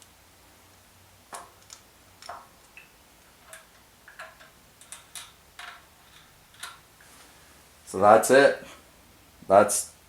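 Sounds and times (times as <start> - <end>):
metallic clicks and clinks: 3.5 - 6.8.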